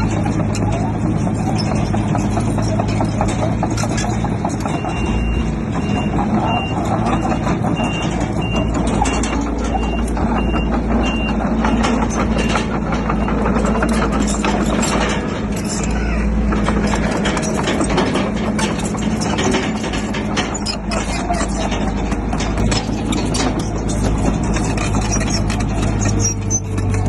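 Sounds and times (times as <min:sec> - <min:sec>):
clanking and knocking: 0:00.0 - 0:27.0
diesel heavy equipment running: 0:00.0 - 0:27.0
reversing alarm beeping: 0:04.6 - 0:14.4.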